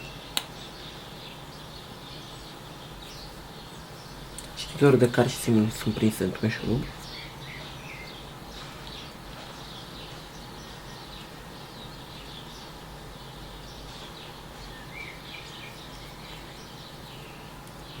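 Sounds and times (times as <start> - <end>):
small birds chirping: 0.0 - 18.0
steady hiss and low hum: 0.0 - 18.0.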